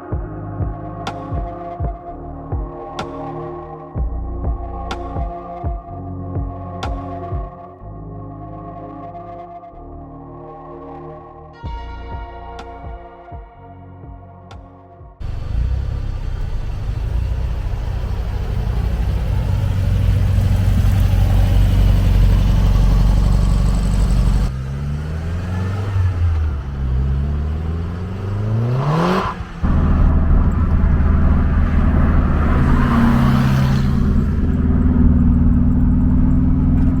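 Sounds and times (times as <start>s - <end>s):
car engine revving: 15.2s - 37.0s.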